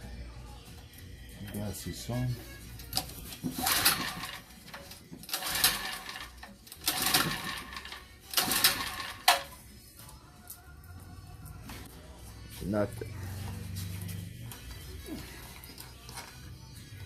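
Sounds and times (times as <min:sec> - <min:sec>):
recoil starter pull whir: 0:03.5 - 0:04.5, 0:05.2 - 0:09.6.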